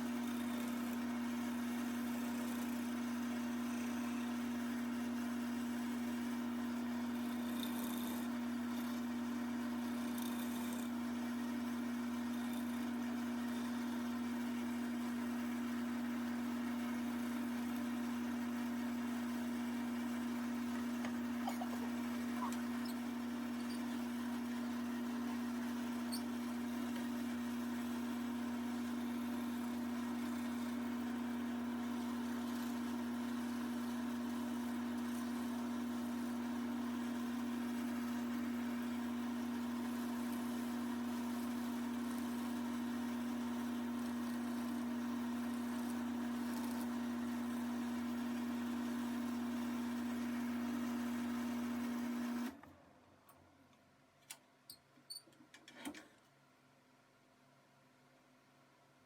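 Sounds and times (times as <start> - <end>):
wood lathe motor humming: 0.0 - 11.0, 11.7 - 31.3.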